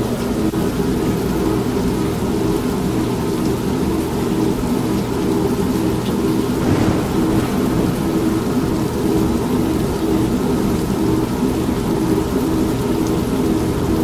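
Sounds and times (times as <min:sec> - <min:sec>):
steady rain: 0:06.0 - 0:14.0
thunder rumble: 0:06.4 - 0:11.8
washing machine running: 0:06.4 - 0:11.8.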